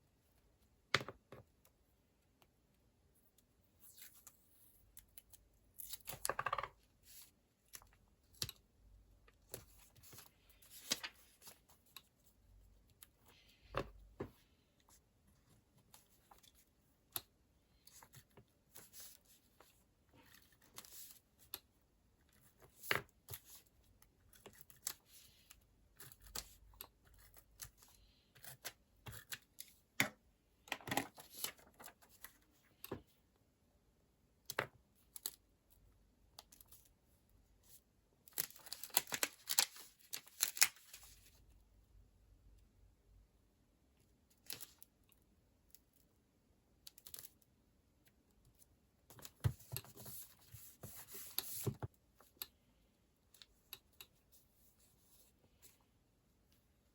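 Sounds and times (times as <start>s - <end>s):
paper rustling and peeling: 38.4s - 41.2s.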